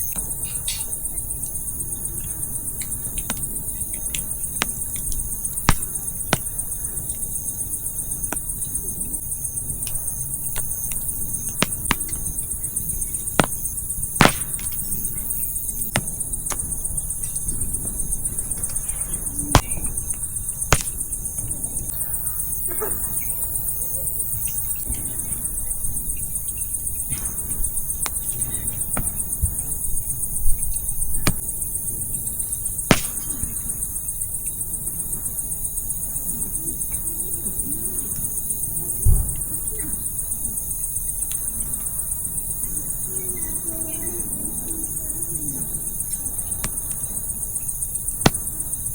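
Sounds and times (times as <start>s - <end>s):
crickets chirring: 0.0s - 48.9s
wood fire crackling and popping: 9.8s - 16.7s, 19.5s - 21.4s, 32.9s - 33.4s.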